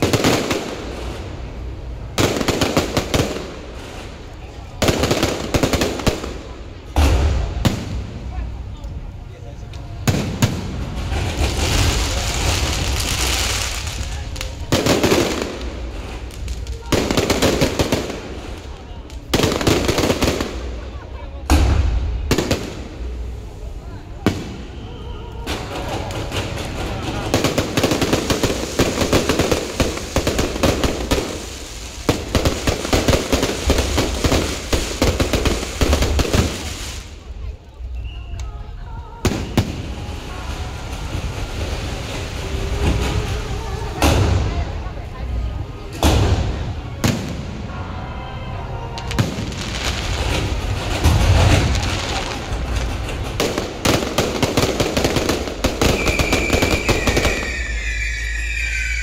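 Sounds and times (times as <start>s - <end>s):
firecrackers cracking: 0.0s - 47.9s, 48.9s - 59.0s
deep firework booms: 4.8s - 8.7s, 10.0s - 23.6s, 45.9s - 47.8s, 49.0s - 57.9s
rapid crackling bangs: 25.4s - 37.0s, 49.1s - 57.6s
high steady whistling tone: 37.9s - 38.7s, 55.9s - 59.0s.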